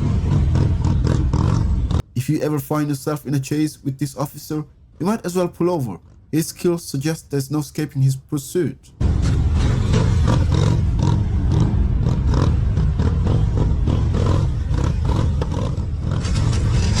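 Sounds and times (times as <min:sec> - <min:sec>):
motorcycle engine rumbling: 0:00.0 - 0:02.1, 0:09.0 - 0:17.0.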